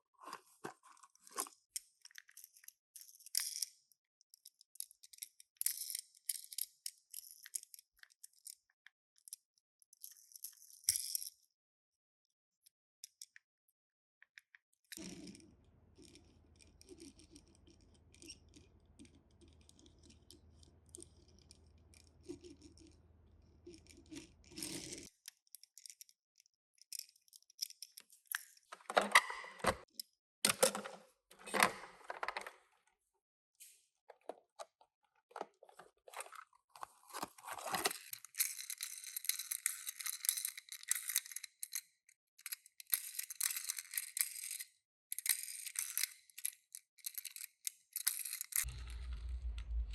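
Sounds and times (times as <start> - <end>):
packaging clicks and rustles: 35.3 - 40.2
wrapper crinkling and tearing: 35.6 - 38.2.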